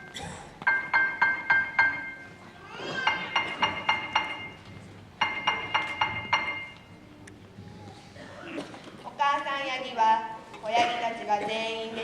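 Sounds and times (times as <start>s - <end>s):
tuned metal percussion notes: 0.0s - 7.0s.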